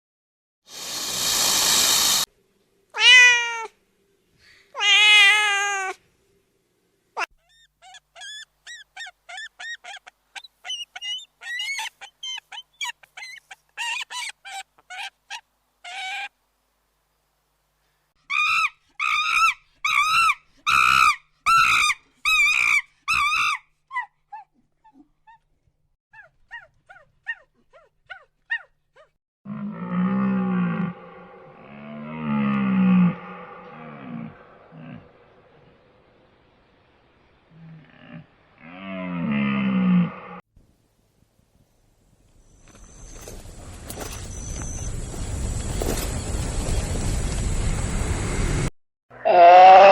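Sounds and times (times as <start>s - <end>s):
loud harsh animal calls: 4.8s - 6.0s, 7.2s - 16.3s, 18.3s - 23.6s, 49.1s - 49.9s
high peeping animal calls: 7.2s - 16.3s
loud low animal call: 29.5s - 35.8s, 49.1s - 49.9s.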